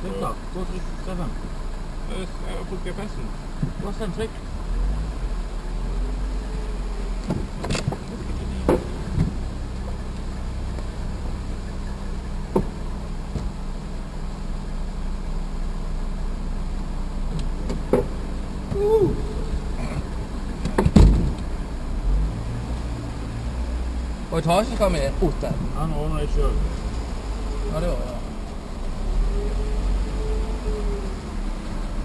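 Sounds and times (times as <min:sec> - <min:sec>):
car engine idling: 0:00.0 - 0:32.0
thump: 0:07.2 - 0:08.0, 0:08.6 - 0:09.4, 0:12.5 - 0:13.6, 0:17.6 - 0:19.0, 0:19.8 - 0:21.4.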